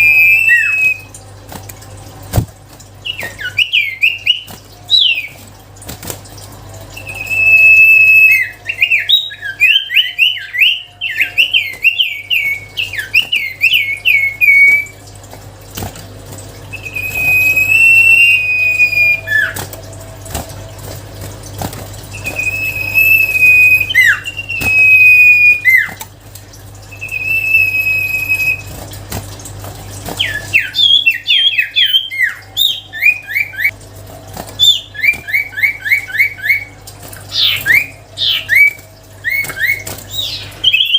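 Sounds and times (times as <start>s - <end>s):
bird whistled song: 0.0s - 1.1s, 3.0s - 5.4s, 7.0s - 15.0s, 16.7s - 19.6s, 22.1s - 26.0s, 26.9s - 28.7s, 30.2s - 33.8s, 34.6s - 40.9s.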